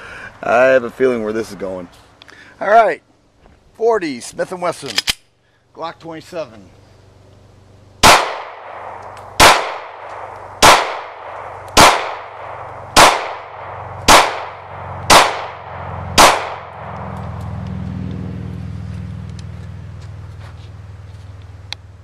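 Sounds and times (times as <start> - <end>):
pistol shots echoing: 8.0 - 17.1.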